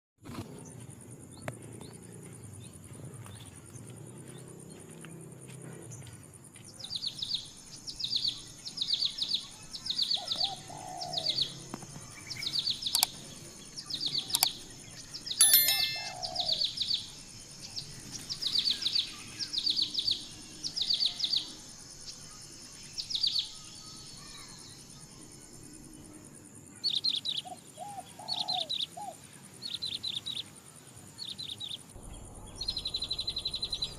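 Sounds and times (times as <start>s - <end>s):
bird chirping descending notes: 15.4s - 16.6s.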